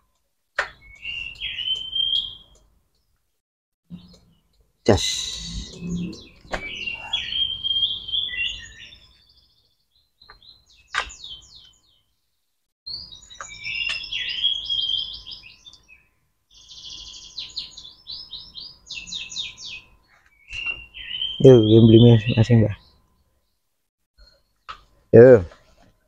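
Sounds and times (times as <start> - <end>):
songbird chirping and warbling: 0.7 - 3.2, 3.9 - 25.3.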